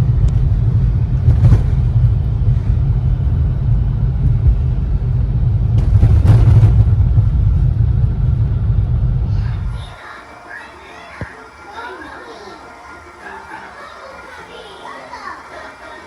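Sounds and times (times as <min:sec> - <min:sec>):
loud low rumble: 0:00.0 - 0:10.0.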